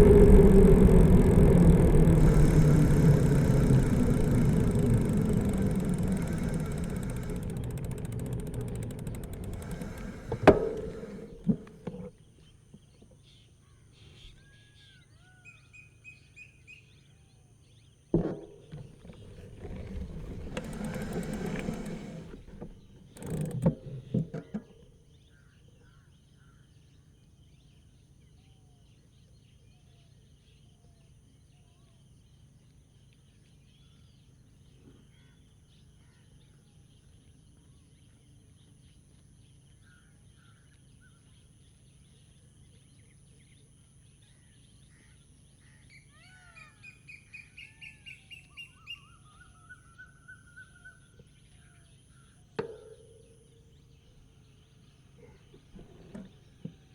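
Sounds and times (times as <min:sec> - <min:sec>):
sharp clatters: 0:00.0 - 0:12.1.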